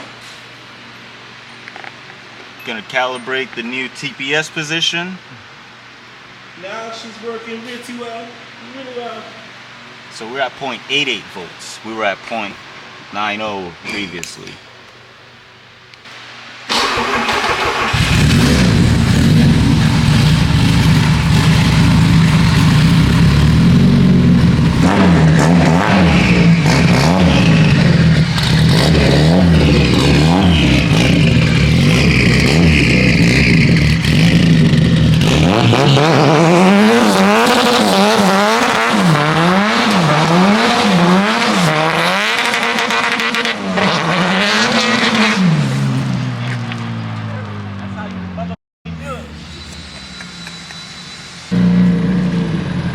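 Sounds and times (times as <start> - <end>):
car engine revving: 16.7 - 52.9.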